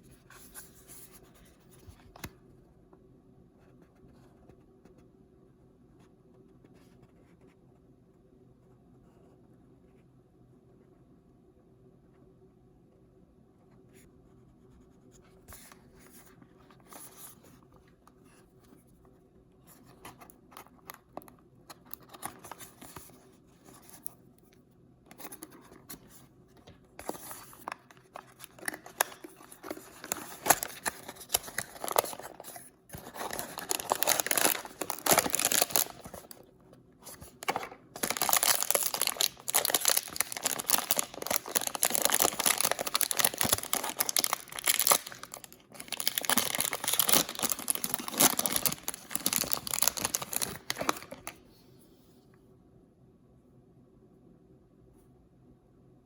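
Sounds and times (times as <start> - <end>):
packaging tearing and crinkling: 27.0 - 36.4, 37.0 - 51.4
paper rustles and clicks: 37.0 - 51.4.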